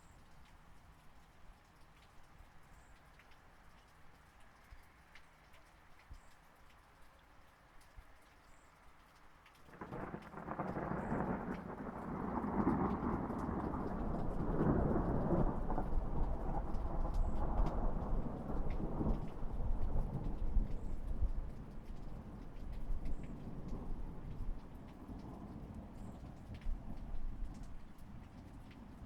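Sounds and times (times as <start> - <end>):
raindrop ticks: 0.0 - 29.0
steady light rain: 0.0 - 29.0
thunder rumbling: 9.7 - 29.0.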